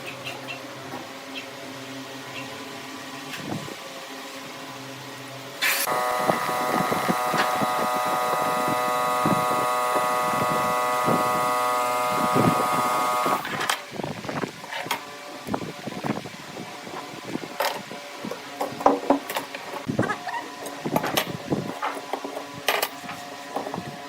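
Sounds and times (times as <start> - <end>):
quiet machine hum: 0.0 - 24.0
wood lathe cutting with whine: 5.6 - 13.7.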